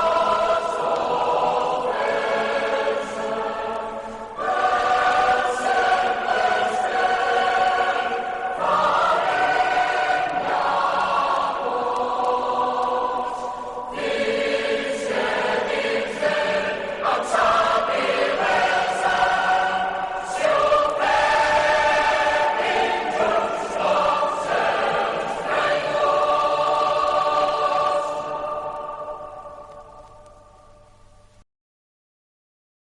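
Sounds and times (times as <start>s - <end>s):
choir singing sustained chords: 0.0s - 31.4s.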